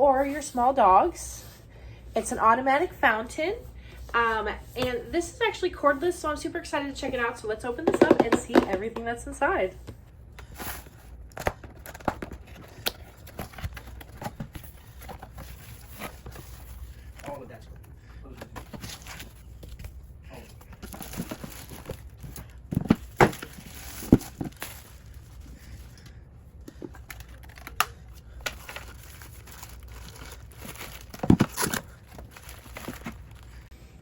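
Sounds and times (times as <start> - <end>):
packaging crinkling and rustling: 10.5 - 17.5, 20.6 - 25.8, 26.7 - 33.7.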